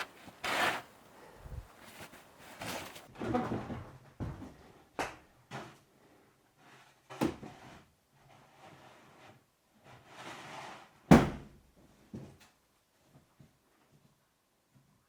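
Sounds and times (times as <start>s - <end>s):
rustling and shuffling of gear: 0.0s - 3.1s.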